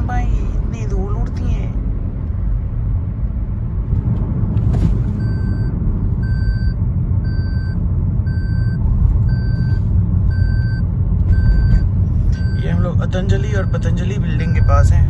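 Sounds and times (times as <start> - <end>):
car driving rumble: 0.0 - 15.0
electronic warning beep: 5.2 - 15.0.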